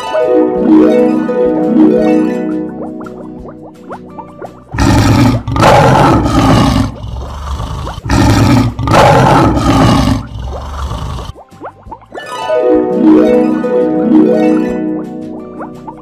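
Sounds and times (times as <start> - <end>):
soft plucked harp music: 0.0 - 4.7, 11.4 - 16.0
lion roar: 4.8 - 11.3.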